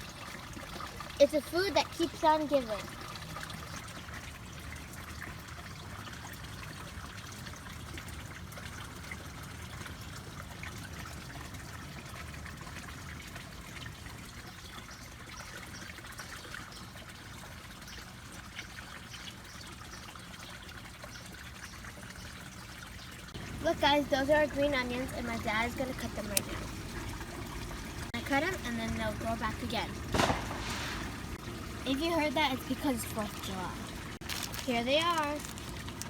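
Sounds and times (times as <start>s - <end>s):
water trickling: 0.0s - 36.0s
low steady hum: 21.8s - 36.0s.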